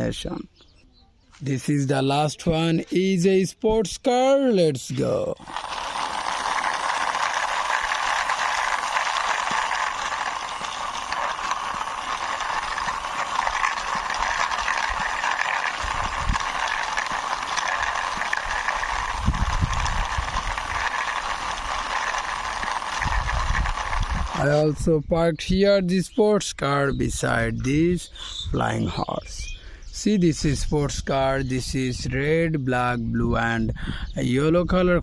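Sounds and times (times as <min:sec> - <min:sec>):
toy car wheels rolling: 0:04.9 - 0:27.8, 0:28.6 - 0:32.5.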